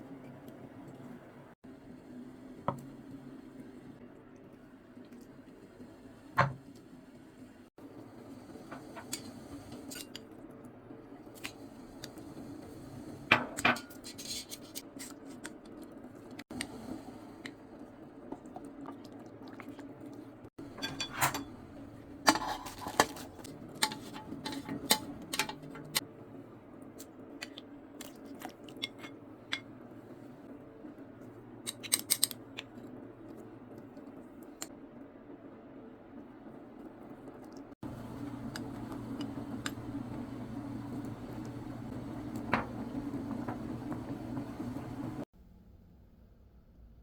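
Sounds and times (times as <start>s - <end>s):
utensils clinking against a pot: 20.6s - 26.0s
steady low hum: 32.4s - 46.1s.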